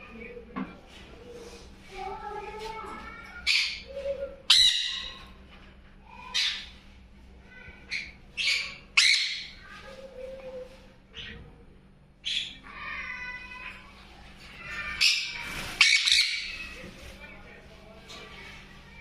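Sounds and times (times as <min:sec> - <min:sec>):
parrot squawking: 0:04.5 - 0:05.3, 0:06.3 - 0:06.7, 0:07.9 - 0:09.6, 0:12.2 - 0:13.0, 0:14.7 - 0:16.7.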